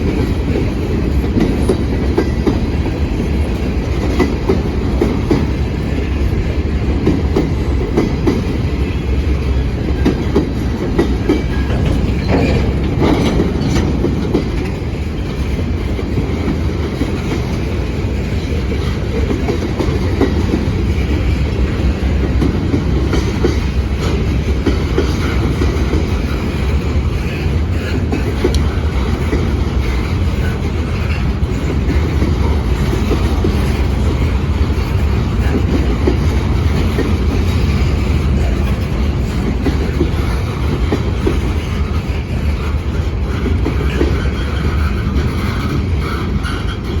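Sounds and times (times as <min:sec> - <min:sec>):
freight train rumbling past: 0:00.0 - 0:47.0
wheels clicking over rail joints: 0:00.0 - 0:47.0.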